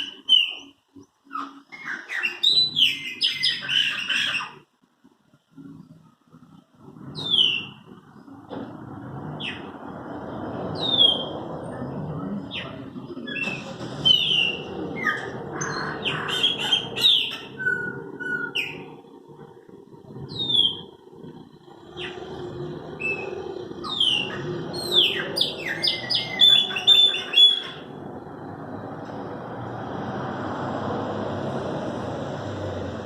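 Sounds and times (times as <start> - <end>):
blackbirds singing: 0.0 - 4.7, 6.8 - 19.1, 20.0 - 28.9.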